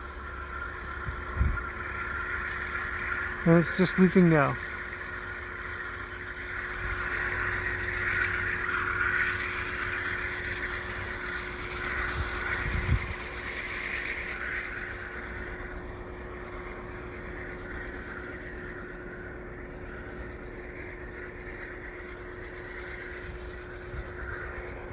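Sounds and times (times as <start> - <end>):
diesel train engine tone: 0.0 - 24.9
train rolling noise: 0.0 - 24.9.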